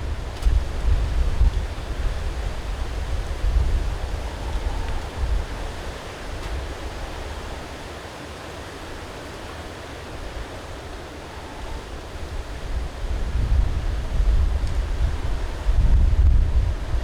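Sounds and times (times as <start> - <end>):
strong wind gusting on microphone: 0.0 - 8.0, 9.7 - 17.0.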